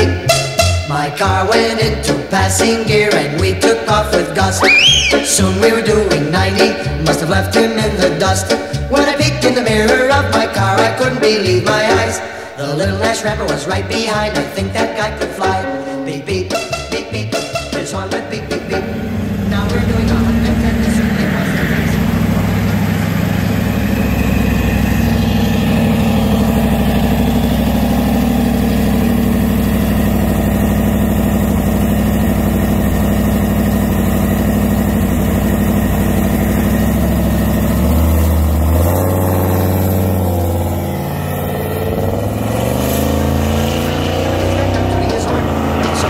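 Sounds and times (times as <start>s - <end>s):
car engine idling rumble: 18.5s - 46.0s.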